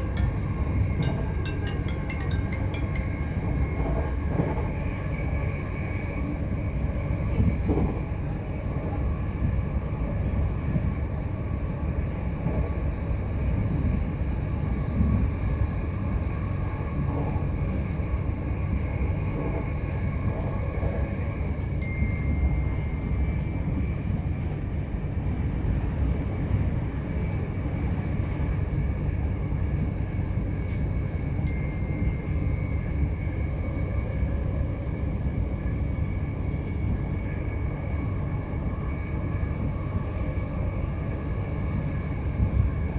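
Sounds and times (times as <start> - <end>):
train wheels rumbling: 0.0 - 6.1.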